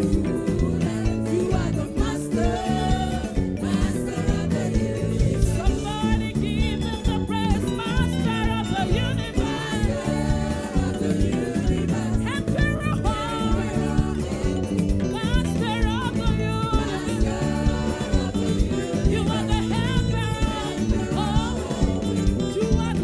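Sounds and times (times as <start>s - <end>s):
choir singing: 0.0s - 15.2s, 16.0s - 23.0s
drums and bass beat: 0.0s - 23.0s.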